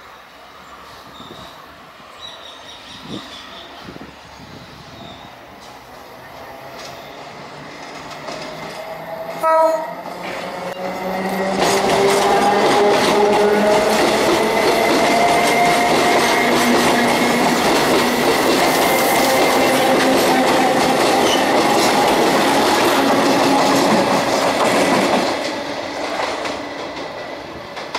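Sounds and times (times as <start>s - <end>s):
train wheels clattering over rail joints: 7.6s - 9.4s, 10.1s - 27.9s.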